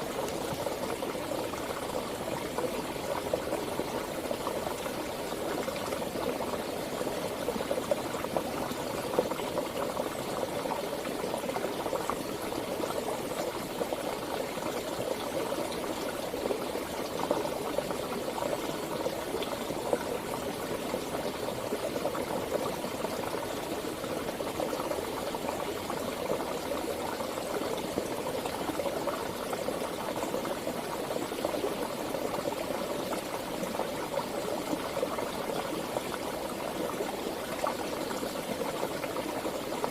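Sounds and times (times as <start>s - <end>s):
river water flowing: 0.0s - 14.3s.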